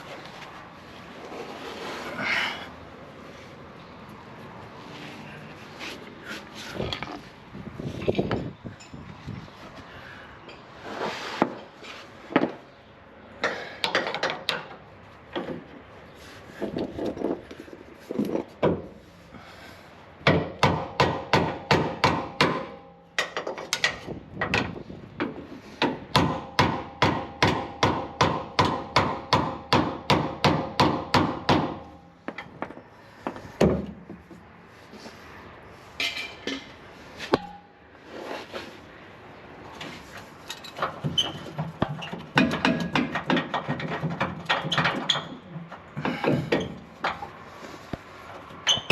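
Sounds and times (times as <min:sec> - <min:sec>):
metal knocks and clanks: 0:40.5 - 0:47.4.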